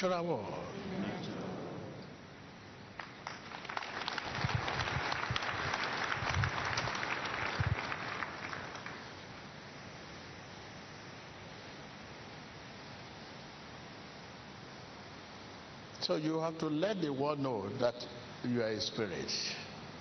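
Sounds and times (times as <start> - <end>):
congregation applauding: 3.0 - 9.4.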